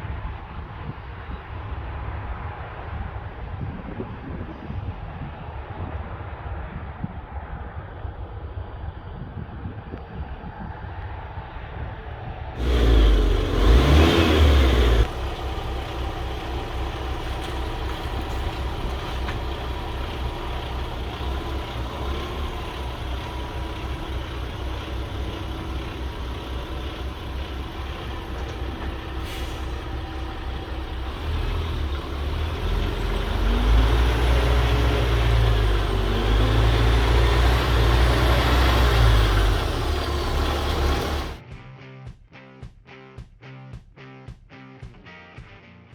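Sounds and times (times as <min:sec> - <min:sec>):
diesel truck engine idling and revving: 0:12.6 - 0:41.4.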